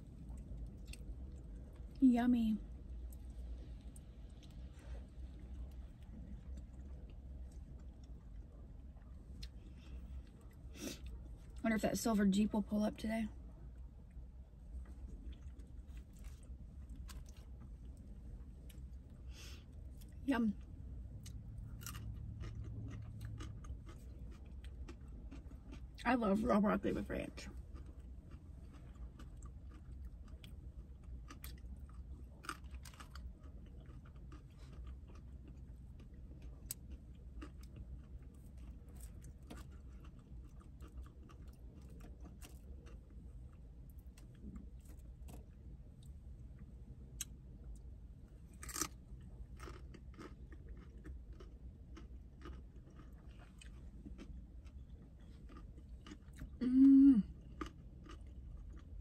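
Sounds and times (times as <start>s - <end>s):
chewing raw vegetables: 19.8s - 26.1s, 27.4s - 47.9s, 48.5s - 59.0s
crisp crunches: 48.5s - 49.0s.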